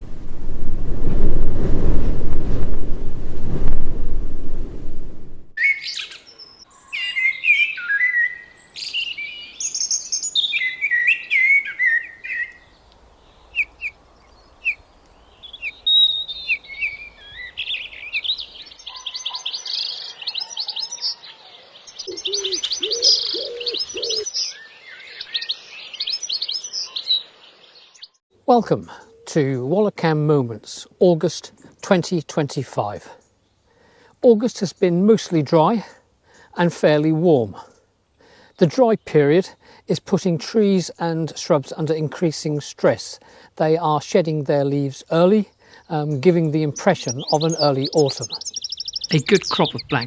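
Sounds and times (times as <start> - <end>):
birds singing and calling: 5.6 - 28.2, 44.6 - 50.0.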